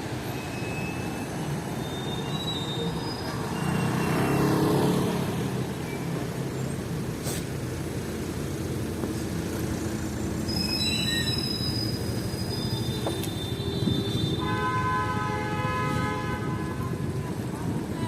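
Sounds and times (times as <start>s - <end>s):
passing vehicle rumble: 0.0s - 14.2s
high squeal: 0.2s - 4.7s, 10.2s - 14.5s
vehicle horn: 13.2s - 17.2s.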